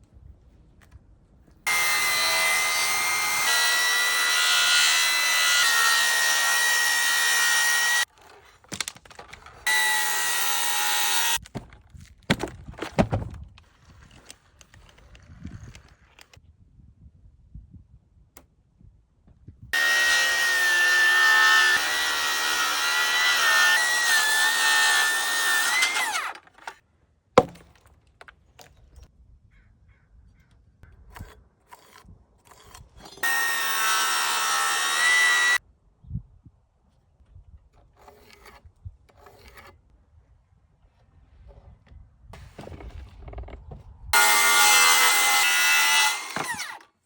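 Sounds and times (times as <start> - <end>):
power tool whining: 1.7 - 8.4, 9.4 - 11.4, 19.8 - 26.8, 33.0 - 35.6, 44.2 - 46.9.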